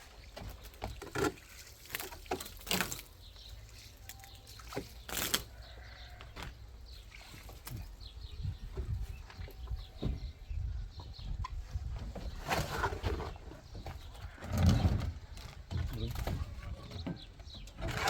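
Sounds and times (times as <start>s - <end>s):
wet cement slaps and scrapes: 0.2s - 5.5s.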